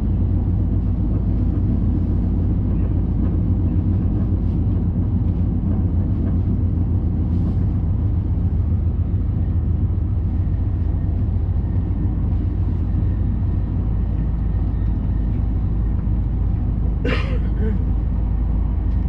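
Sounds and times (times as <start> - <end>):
train rumble inside passenger car: 0.0 - 19.0.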